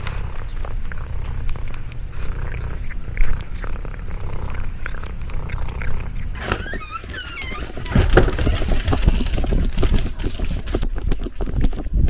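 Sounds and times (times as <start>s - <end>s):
cat purring: 0.0s - 6.4s.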